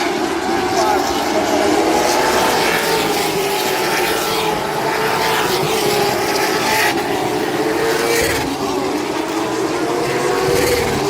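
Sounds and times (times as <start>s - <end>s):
race car engines droning: 0.0s - 11.0s.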